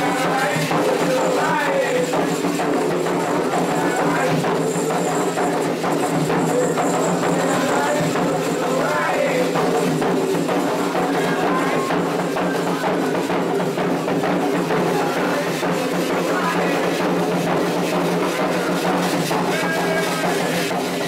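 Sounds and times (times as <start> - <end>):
fast drumming: 0.0 - 21.0
rattling percussion: 0.0 - 21.0
voices singing a chant: 0.0 - 21.0.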